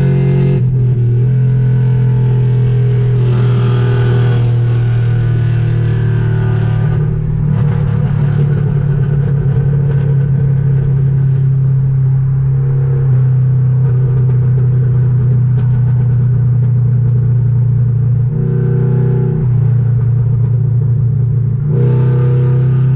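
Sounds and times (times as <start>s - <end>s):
car engine running: 0.0s - 22.9s.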